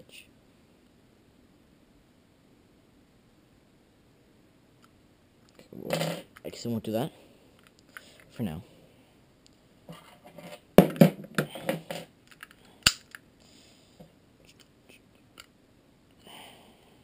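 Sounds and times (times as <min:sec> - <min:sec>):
pistol parts clicking and rattling: 0:10.9 - 0:13.3.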